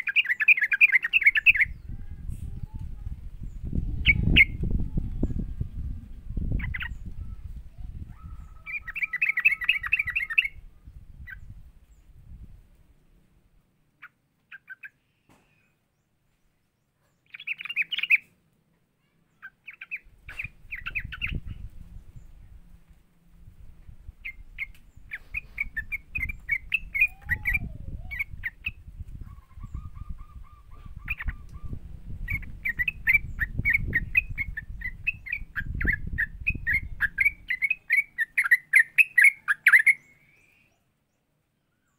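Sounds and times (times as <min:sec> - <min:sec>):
bulbul chattering chirps: 0:00.0 - 0:02.0, 0:24.2 - 0:40.5.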